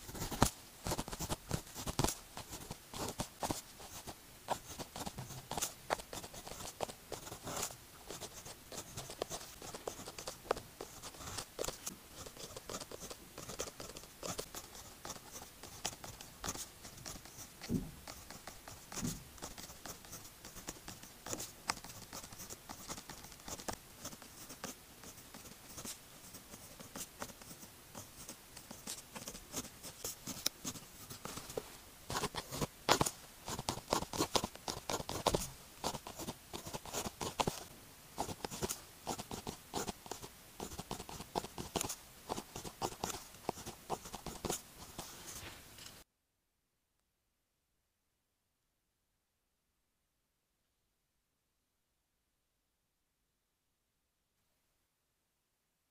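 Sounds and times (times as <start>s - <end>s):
pen scratching on paper: 0.0s - 45.5s
pen nib tapping: 32.1s - 37.6s, 38.2s - 45.1s.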